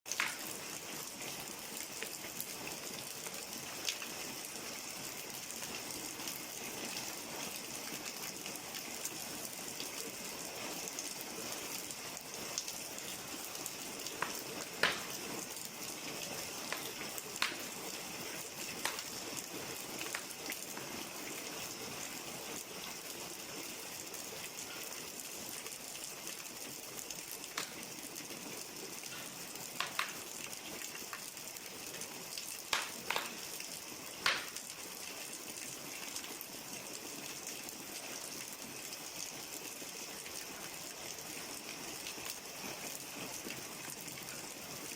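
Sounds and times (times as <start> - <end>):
wood fire hissing and crackling: 0.1 - 44.9.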